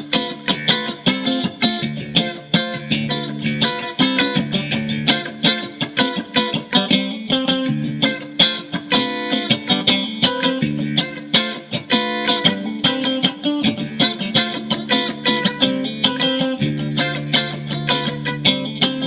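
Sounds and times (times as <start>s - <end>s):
electric guitar picking and strumming: 0.0s - 19.0s.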